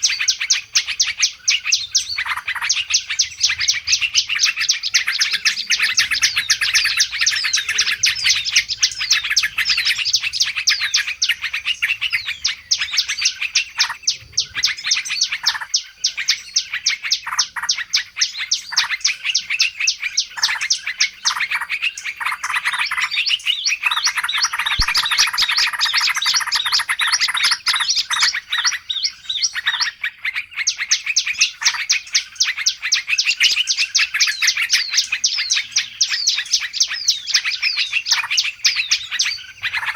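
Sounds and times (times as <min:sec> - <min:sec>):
small birds chirping and twittering: 0:00.0 - 0:39.9
fast repeated low bird notes: 0:00.3 - 0:15.6, 0:23.8 - 0:29.7.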